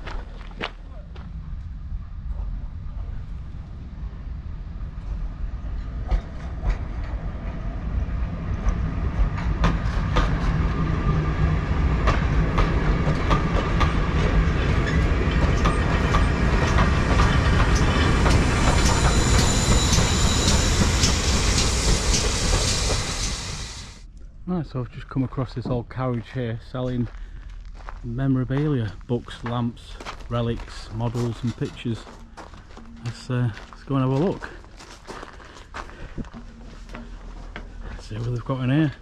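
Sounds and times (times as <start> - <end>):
train rumbling: 0.0 - 39.0
wheels clacking over rail joints: 8.6 - 23.3.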